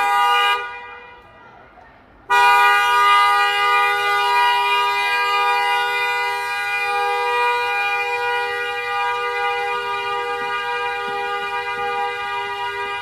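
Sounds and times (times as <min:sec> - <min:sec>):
car horn blaring: 0:00.0 - 0:01.3, 0:02.3 - 0:13.0.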